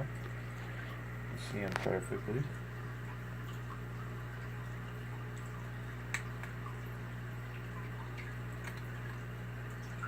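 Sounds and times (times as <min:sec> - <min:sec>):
aquarium filter humming: 0:00.0 - 0:10.0
water dripping and bubbling: 0:00.0 - 0:10.0.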